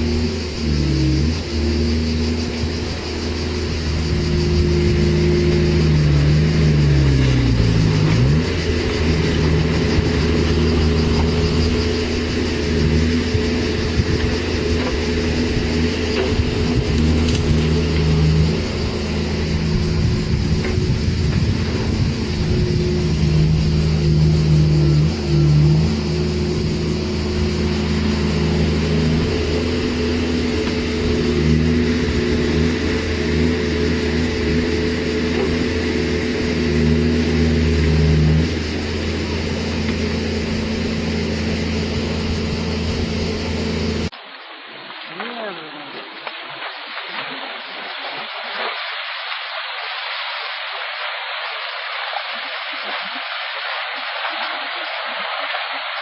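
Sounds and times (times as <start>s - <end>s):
engine running: 0.0s - 44.2s.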